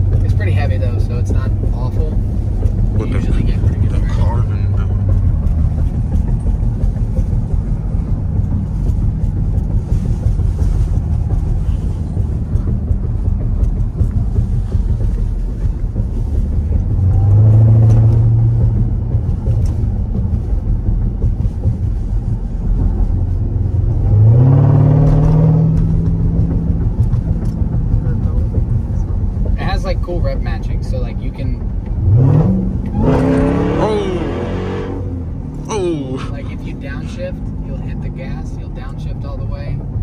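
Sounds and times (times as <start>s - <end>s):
car engine drone from inside: 0.0s - 40.0s.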